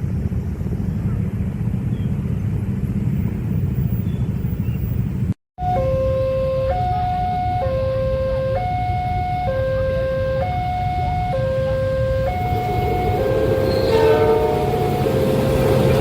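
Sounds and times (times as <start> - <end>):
engines idling low rumble: 0.0 - 16.0
level crossing two-tone alarm: 5.6 - 15.9.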